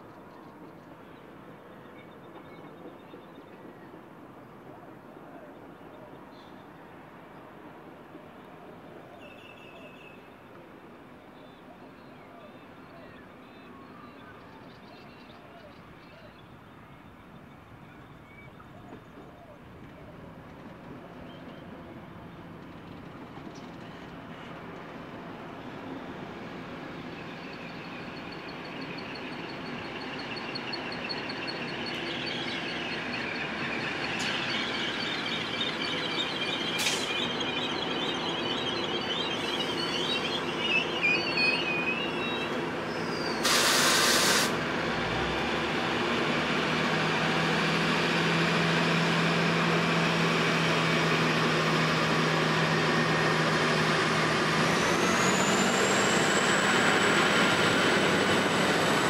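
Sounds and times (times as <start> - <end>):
train running noise: 15.8 - 59.0
wheel squeal: 28.2 - 44.3
brief loud hiss: 43.3 - 44.6.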